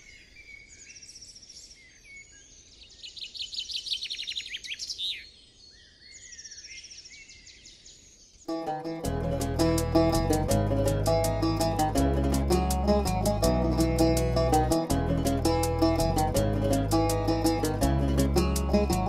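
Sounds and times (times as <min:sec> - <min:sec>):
songbirds trilling and chirping: 0:00.0 - 0:08.6
faint outdoor hiss: 0:08.0 - 0:19.0.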